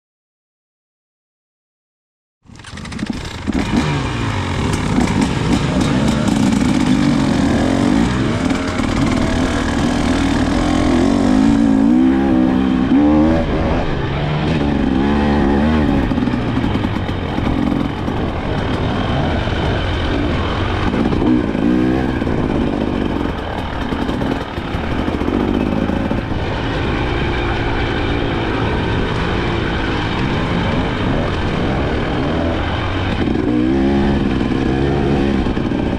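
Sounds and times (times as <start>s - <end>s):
two-stroke motorcycle engine revving: 2.4s - 35.9s.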